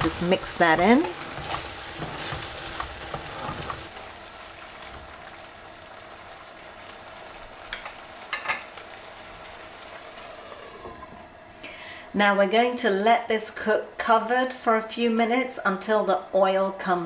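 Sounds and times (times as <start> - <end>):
spoon stirring in pan: 0.0 - 3.9
curry base sizzling in oil: 0.0 - 12.0.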